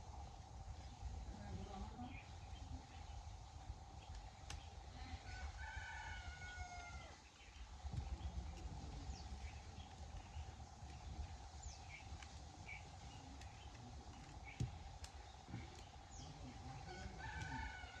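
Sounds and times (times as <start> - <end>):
rooster crowing: 5.2 - 7.2, 16.8 - 18.0.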